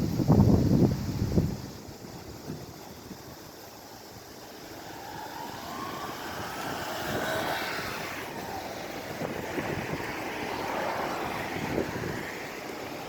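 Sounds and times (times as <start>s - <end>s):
wind noise: 0.0s - 13.0s
engine passing by: 4.2s - 13.0s.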